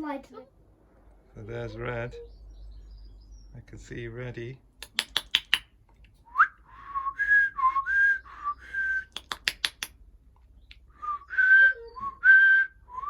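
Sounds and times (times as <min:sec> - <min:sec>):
quick sharp clicks: 0:04.8 - 0:06.2, 0:09.0 - 0:10.0.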